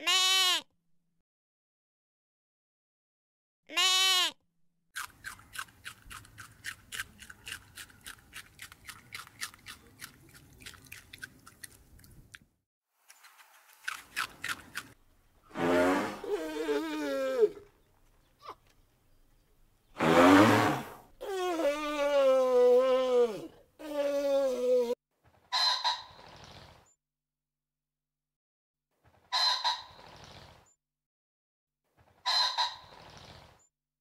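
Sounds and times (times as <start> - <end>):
goat bleating: 0.0 - 0.6, 3.7 - 4.4
rabbits chewing greens: 5.0 - 12.4, 13.1 - 15.0.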